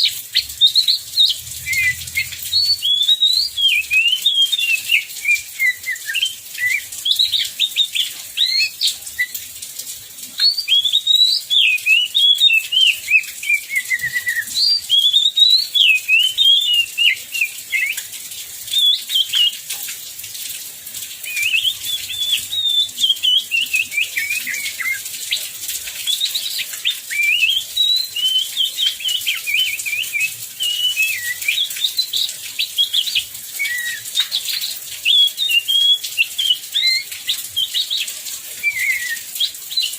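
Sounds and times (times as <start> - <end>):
bird warbling song: 0.0 - 9.3, 21.2 - 39.9.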